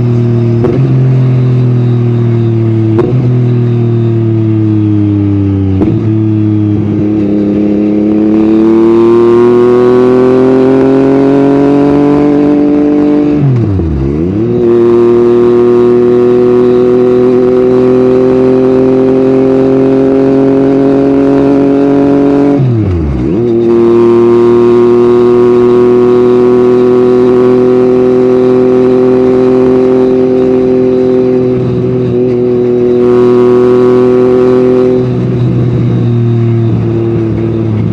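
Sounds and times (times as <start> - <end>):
motorcycle engine running: 0.0 - 37.9.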